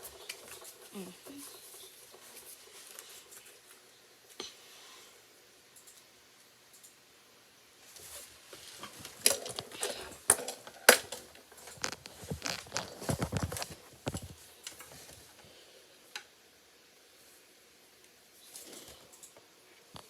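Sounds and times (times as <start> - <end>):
click: 5.8 - 6.0.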